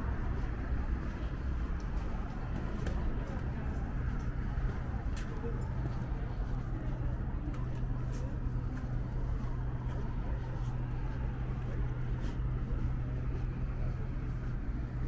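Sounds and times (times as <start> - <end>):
traffic noise: 0.0 - 7.4
low machinery hum: 0.0 - 15.0.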